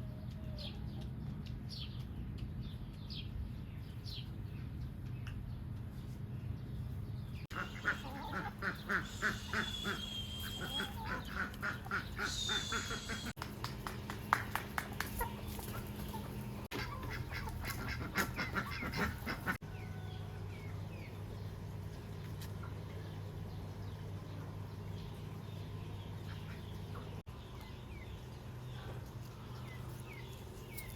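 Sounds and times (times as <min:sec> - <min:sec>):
poultry calling: 0:07.5 - 0:13.4, 0:15.2 - 0:20.3
high whistled bird calls: 0:09.0 - 0:11.0, 0:12.2 - 0:13.4.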